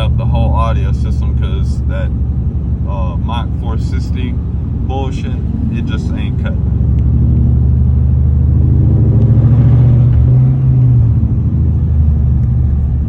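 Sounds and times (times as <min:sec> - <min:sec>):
deep engine exhaust drone: 0:00.0 - 0:13.0.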